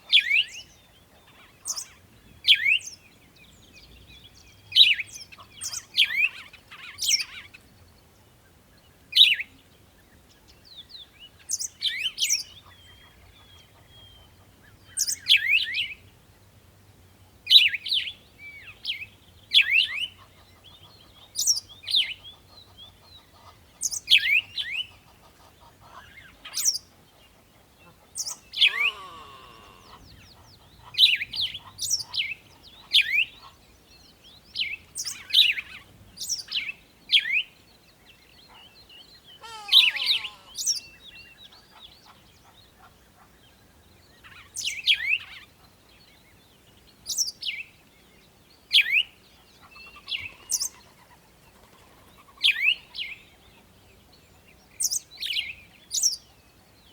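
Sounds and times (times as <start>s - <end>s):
songbird chirping: 17.0s - 56.9s
lower falling bird call: 28.5s - 30.2s, 39.3s - 40.9s.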